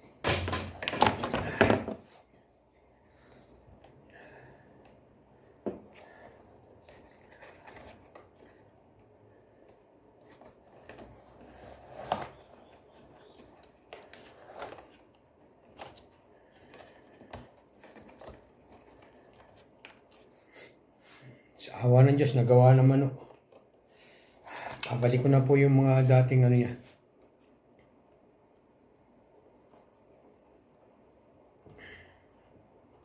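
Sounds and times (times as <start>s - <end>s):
vacuum cleaner parts knocking: 0.2s - 2.0s.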